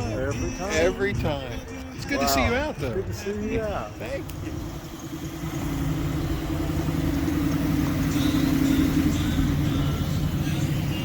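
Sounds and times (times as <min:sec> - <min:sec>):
car engine running slowly: 0:03.1 - 0:11.0.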